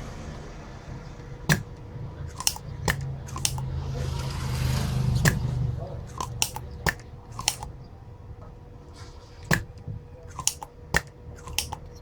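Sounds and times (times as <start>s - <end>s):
hand tools clicking and snipping: 1.5s - 7.8s, 9.4s - 12.0s.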